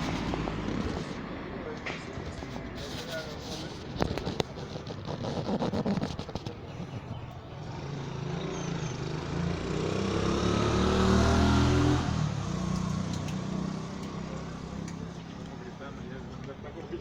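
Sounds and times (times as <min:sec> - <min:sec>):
vehicle engine passing by: 0:00.0 - 0:03.8, 0:06.8 - 0:16.1.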